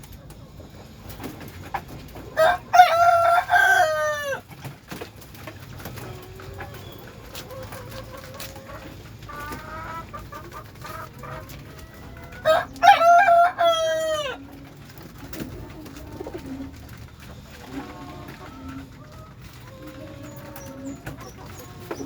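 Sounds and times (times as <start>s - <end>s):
pigeons cooing: 0.0s - 22.0s
rooster crowing: 2.4s - 4.5s, 11.6s - 14.5s.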